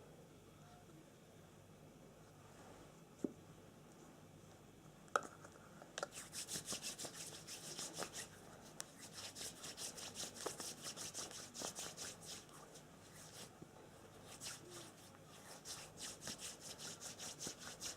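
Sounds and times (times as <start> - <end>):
fast rubbing or scratching strokes: 6.1 - 17.9.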